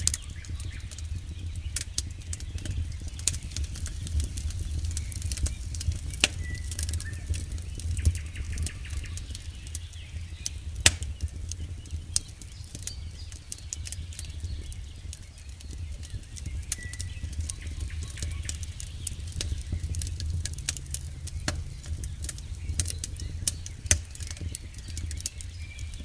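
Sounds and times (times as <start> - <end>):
burning wood crackling and popping: 0.0 - 26.0
campfire flame rumble: 0.0 - 26.0.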